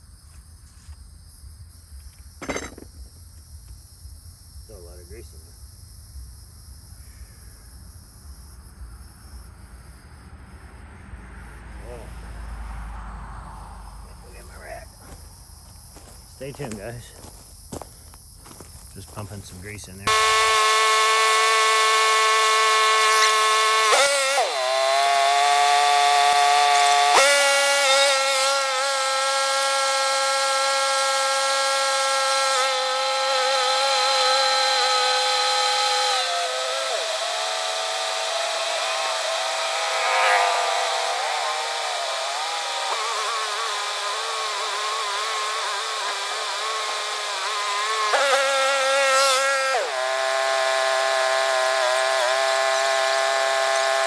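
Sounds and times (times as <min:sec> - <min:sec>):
grease gun motor whining: 0:02.1 - 0:03.0, 0:20.0 - 0:54.0.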